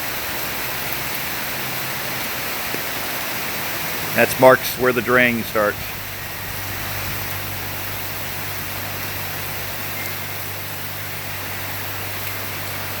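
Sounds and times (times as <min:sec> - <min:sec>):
heavy rain falling: 0:00.0 - 0:13.0
steady low hum: 0:03.6 - 0:12.7.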